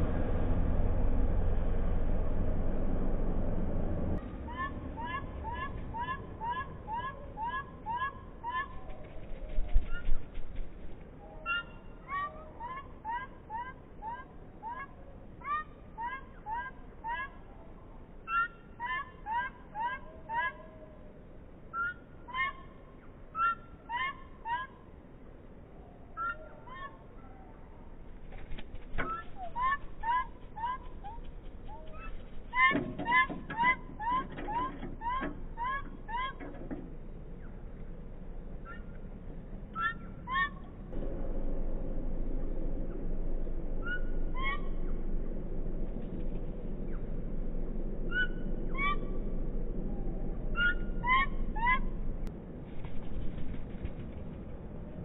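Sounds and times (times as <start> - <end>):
steady background noise: 0.0 - 55.0
bird calling: 4.2 - 10.4, 11.1 - 25.0, 25.6 - 37.8, 38.6 - 39.1, 39.7 - 40.9, 43.8 - 45.1, 48.0 - 52.3
bird chirps: 11.2 - 14.9, 50.0 - 51.9.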